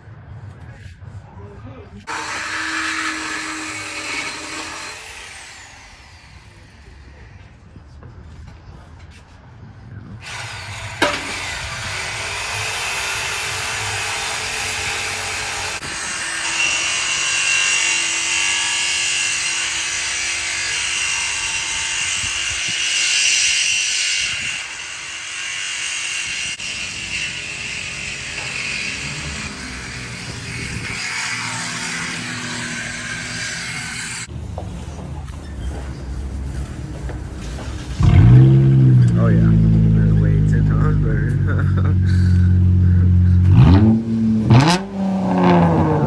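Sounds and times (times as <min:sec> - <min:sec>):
power tool grinding metal pipe: 0:02.1 - 0:07.0, 0:10.2 - 0:34.3, 0:40.8 - 0:46.0.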